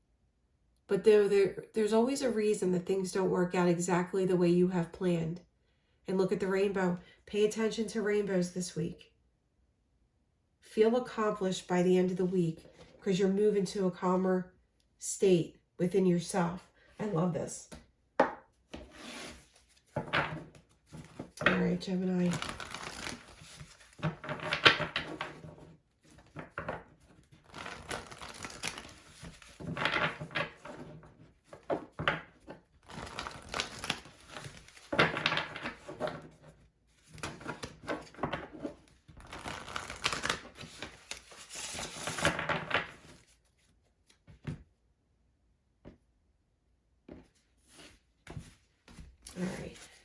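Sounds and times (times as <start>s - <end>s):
cards being shuffled: 18.7s - 43.4s.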